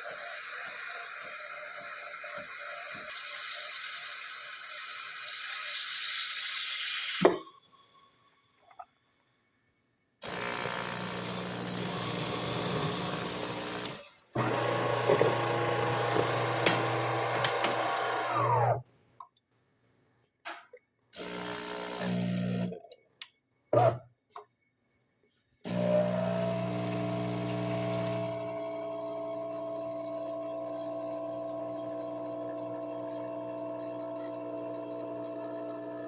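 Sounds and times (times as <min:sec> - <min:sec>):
coffee machine humming: 0:10.2 - 0:18.8, 0:21.2 - 0:22.8, 0:25.7 - 0:36.0.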